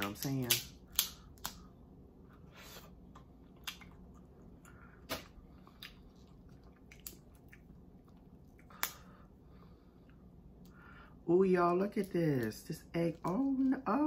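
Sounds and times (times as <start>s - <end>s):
close-miked chewing: 2.8s - 9.3s
wet mouth clicks and smacks: 3.5s - 4.3s, 5.0s - 9.1s.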